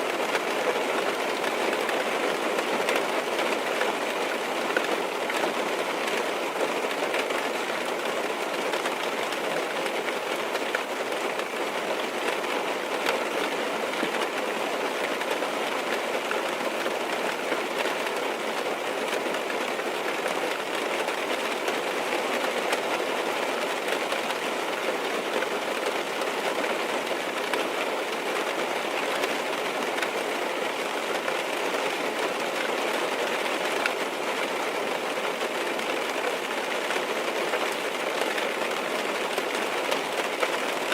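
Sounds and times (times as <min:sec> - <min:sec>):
rain on a car roof: 0:00.0 - 0:40.9.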